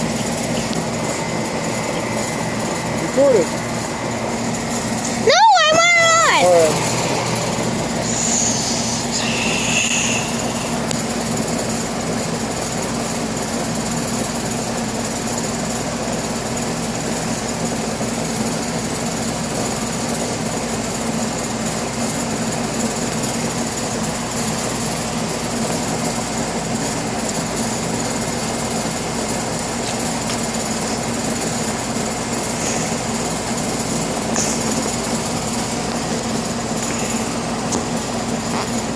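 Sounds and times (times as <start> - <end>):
faint high whine: 0.0 - 11.1
air conditioner hum: 0.0 - 38.9.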